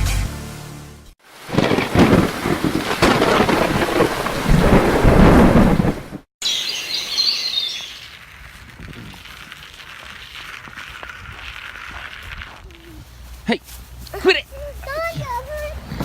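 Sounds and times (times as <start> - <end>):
rain: 1.2 - 6.2
rumbling thunder: 1.5 - 6.2
high twittering: 6.4 - 8.1.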